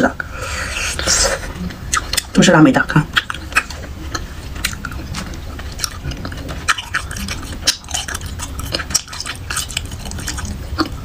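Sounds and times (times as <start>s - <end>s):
chewing wax candy: 3.1s - 11.0s.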